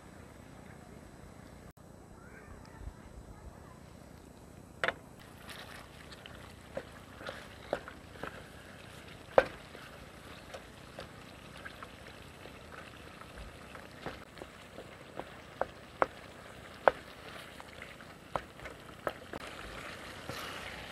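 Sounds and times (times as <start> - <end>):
chicken sizzling in oil: 5.2 - 20.9.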